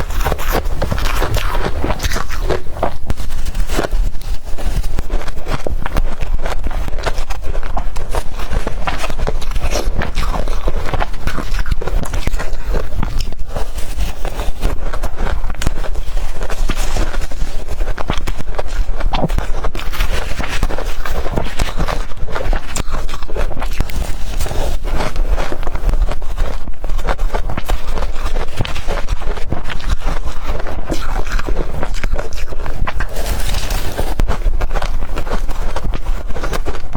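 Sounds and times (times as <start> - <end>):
ice being chewed: 0.0 - 36.9.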